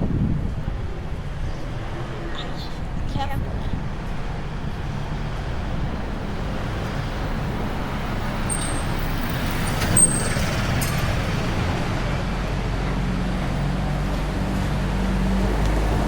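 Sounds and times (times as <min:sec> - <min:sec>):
vehicle engine humming: 0:00.0 - 0:16.0
high-pitched squeaks: 0:08.4 - 0:11.1.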